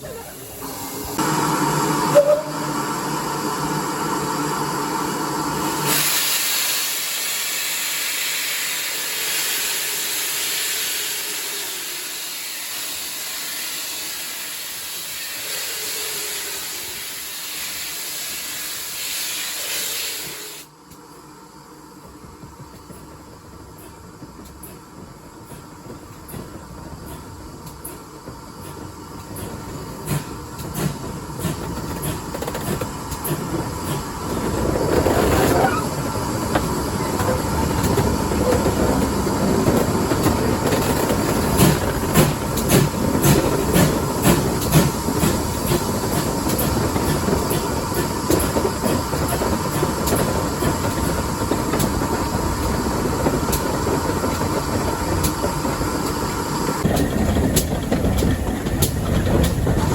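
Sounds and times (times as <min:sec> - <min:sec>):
steam train rumbling: 0:00.0 - 0:59.9
wheels clicking over rail joints: 0:36.5 - 0:59.9.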